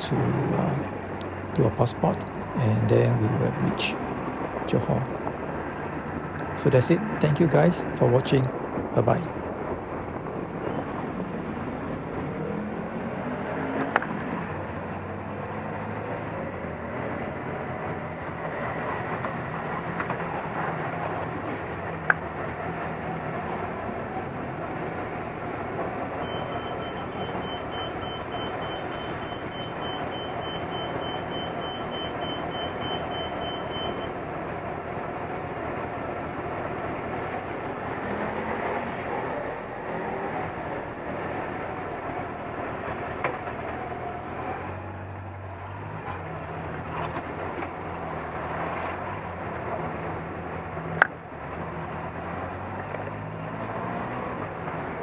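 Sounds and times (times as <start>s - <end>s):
motorcycle engines: 0.0s - 16.3s
traffic: 0.0s - 55.0s.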